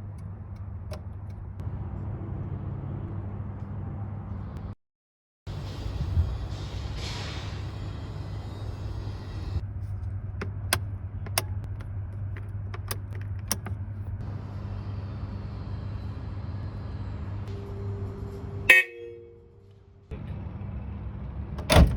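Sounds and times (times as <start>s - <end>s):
car engine idling: 9.0s - 18.8s.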